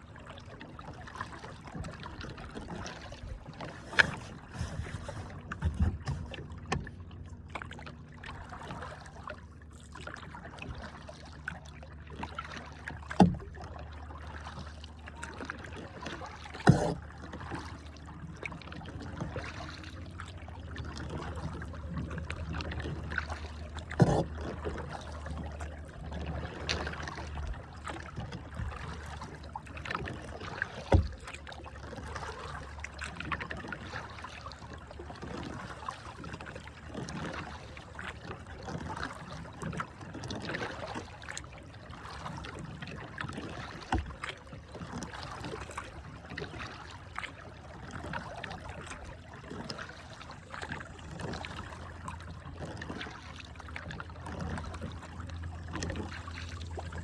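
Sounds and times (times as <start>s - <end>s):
paddle splashing water: 0.0s - 57.0s
low steady hum: 50.0s - 57.0s.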